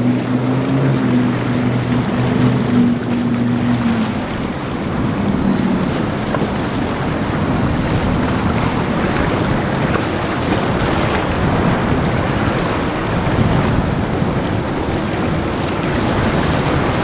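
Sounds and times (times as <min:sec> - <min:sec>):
boat engine hum: 0:00.0 - 0:17.0
rushing water and surf: 0:00.0 - 0:17.0
wind buffeting microphone: 0:00.0 - 0:17.0.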